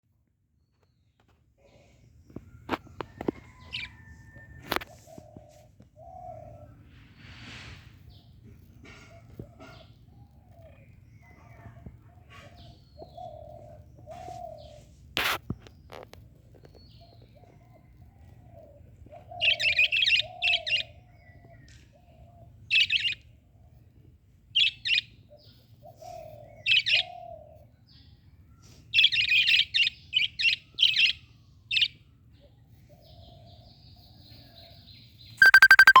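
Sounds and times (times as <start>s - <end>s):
loud pitched sound: 35.4s - 36.0s
small birds chirping: 35.4s - 36.0s
soft low bird calls: 35.4s - 36.0s.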